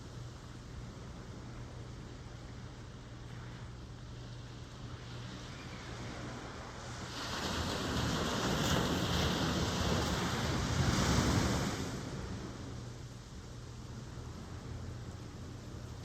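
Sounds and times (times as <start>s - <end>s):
ocean wave breaking: 6.8s - 12.8s.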